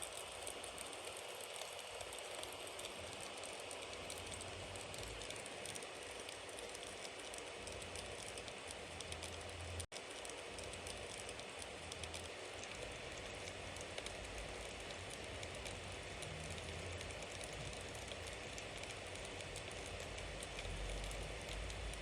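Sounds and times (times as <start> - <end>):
bonfire crackling and popping: 0.0 - 22.0.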